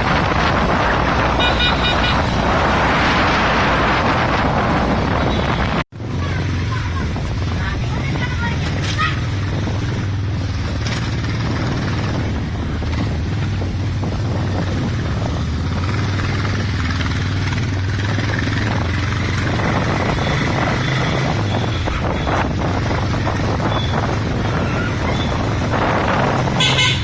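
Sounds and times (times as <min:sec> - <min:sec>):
road noise: 0:00.0 - 0:27.0
wind noise: 0:00.0 - 0:27.0
motorcycle engine running: 0:05.0 - 0:27.0.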